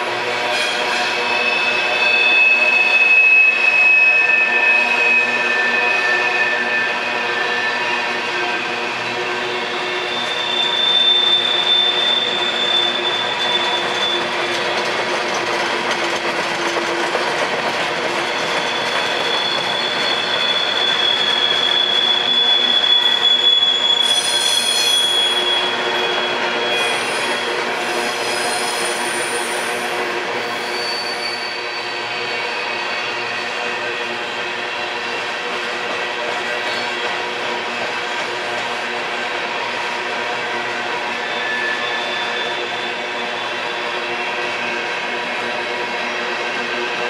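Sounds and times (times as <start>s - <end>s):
steel wheels squealing on rails: 0.0s - 47.0s
freight train cars rolling: 0.6s - 32.2s.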